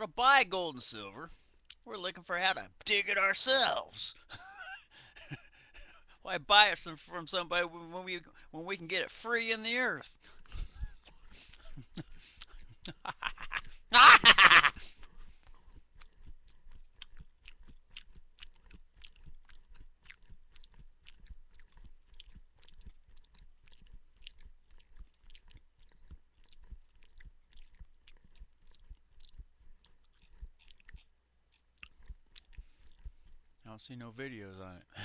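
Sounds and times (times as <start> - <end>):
chewing crunchy food: 1.3 - 1.9, 10.0 - 33.7.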